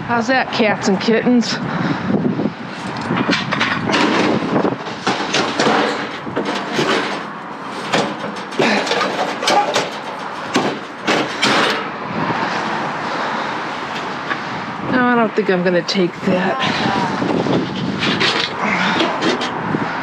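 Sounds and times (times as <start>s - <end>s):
junk clattering in a dumpster: 3.2s - 12.0s, 17.4s - 19.7s.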